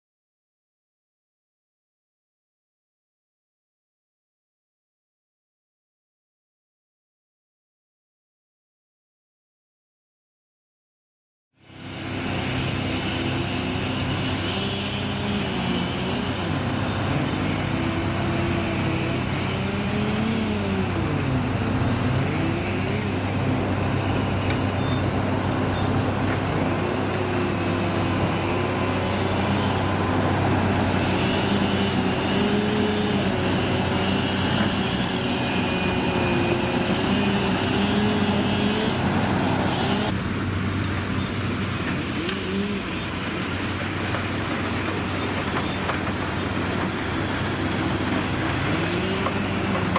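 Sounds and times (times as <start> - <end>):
heavy diesel engines revving: 11.6 - 49.9.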